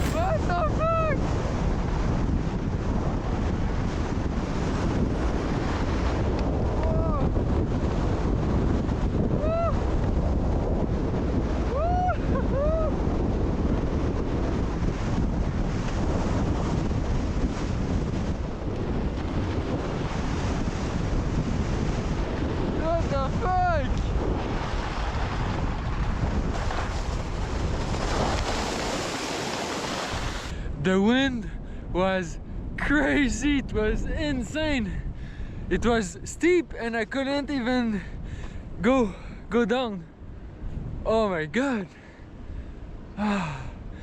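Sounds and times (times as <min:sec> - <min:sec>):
short high rising tones: 0:00.0 - 0:01.8
wind buffeting microphone: 0:00.0 - 0:41.3, 0:42.0 - 0:44.0.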